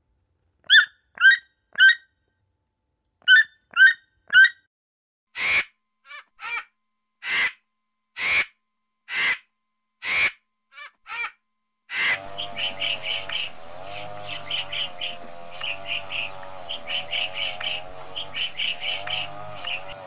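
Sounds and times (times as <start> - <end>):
harsh raspy bird calls: 7.2 - 7.6, 8.2 - 10.9, 11.9 - 20.0
short high bird calls: 11.9 - 20.0.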